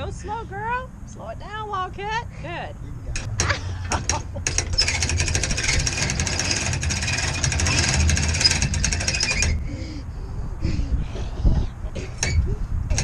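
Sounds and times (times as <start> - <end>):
winch ratcheting clicks: 3.2 - 9.6, 12.2 - 13.0.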